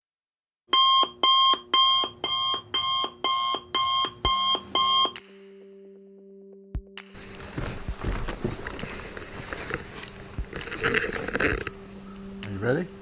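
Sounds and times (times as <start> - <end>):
electronic alarm beeping: 0.7 - 5.3.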